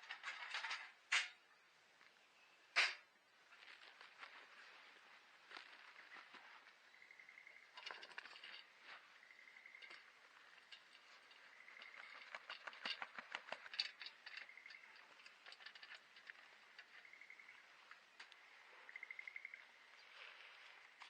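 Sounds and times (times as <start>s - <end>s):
sharp clicks and crackles: 9.8s - 17.1s.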